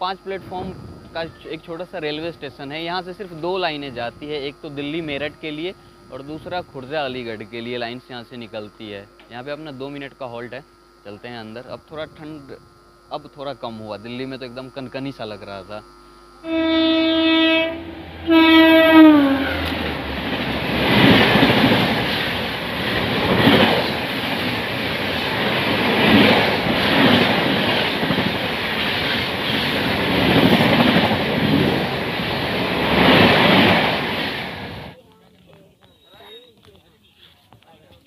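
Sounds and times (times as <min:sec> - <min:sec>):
train horn blasts: 0:16.4 - 0:21.5
train wheels rumbling on rails: 0:17.6 - 0:35.0.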